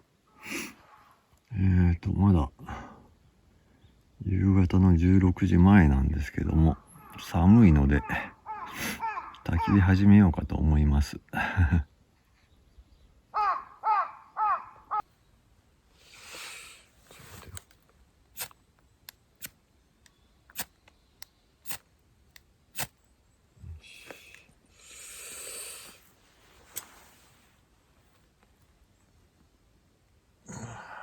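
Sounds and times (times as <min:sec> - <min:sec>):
crow cawing: 0:06.9 - 0:07.3, 0:07.9 - 0:09.9, 0:13.3 - 0:15.1
soft rustling: 0:26.0 - 0:29.5.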